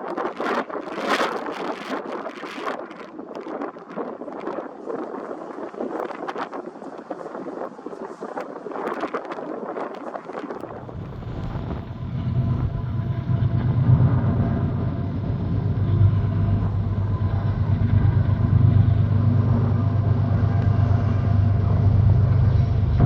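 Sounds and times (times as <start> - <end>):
diesel locomotive engine drone: 10.6 - 23.0.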